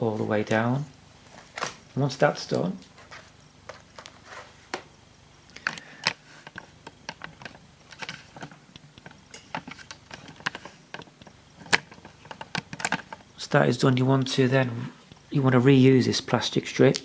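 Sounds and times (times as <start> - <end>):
clicks of laptop plastic handled: 5.6 - 13.4.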